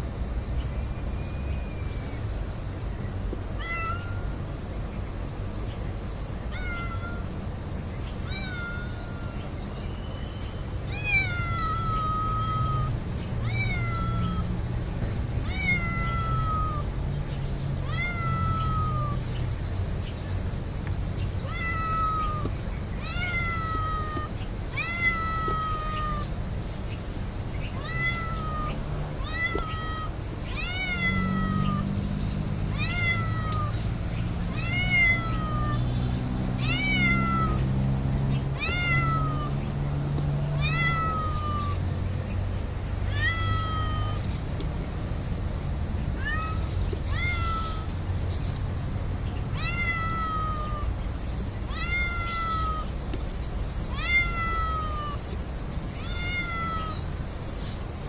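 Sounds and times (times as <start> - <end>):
cat meowing: 3.6 - 4.4, 6.5 - 7.3, 8.2 - 9.5, 10.9 - 14.4, 15.4 - 16.9, 17.8 - 19.3, 21.4 - 26.3, 27.6 - 32.0, 32.7 - 33.8, 34.5 - 35.9, 36.6 - 37.7, 38.5 - 39.7, 40.4 - 41.8, 43.1 - 44.3, 46.2 - 47.9, 49.5 - 50.9, 51.6 - 53.0, 53.9 - 55.3, 55.9 - 57.1.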